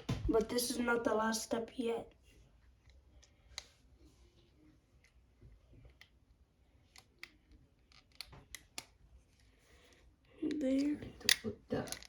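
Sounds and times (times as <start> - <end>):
plastic parts clicking: 6.9 - 9.0, 10.5 - 12.0.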